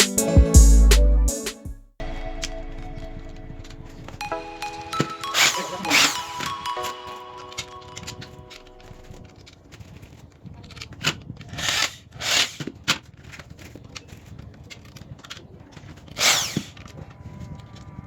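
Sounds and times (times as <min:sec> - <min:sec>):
tool rasping strokes: 0:16.1 - 0:16.9.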